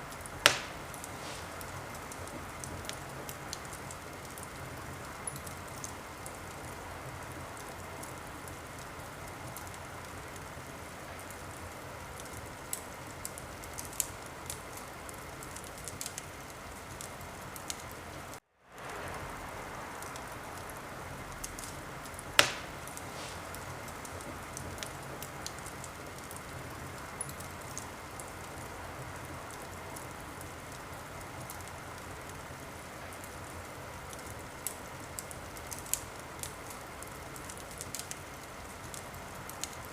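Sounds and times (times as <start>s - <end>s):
wood fire crackling: 0.0s - 39.9s
loud sharp pop: 0.4s - 1.5s, 22.4s - 23.5s.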